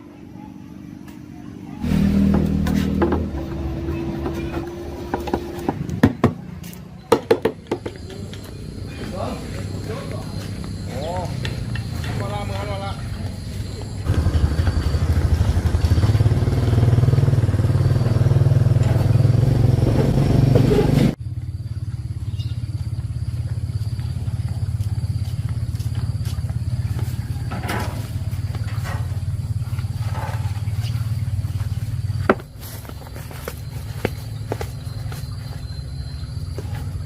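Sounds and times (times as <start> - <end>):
small motorcycle engine running: 1.8 - 5.8, 14.0 - 37.0.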